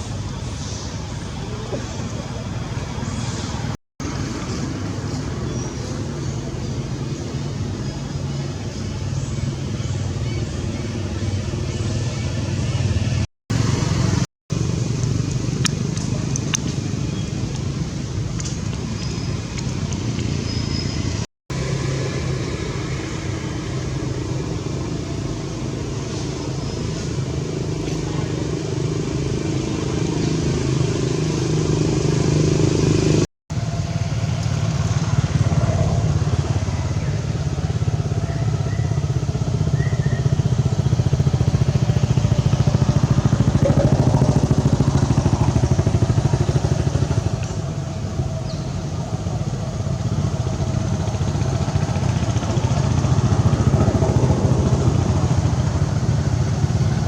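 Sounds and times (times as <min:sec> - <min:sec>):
small motor engine running: 0:21.5 - 0:57.0.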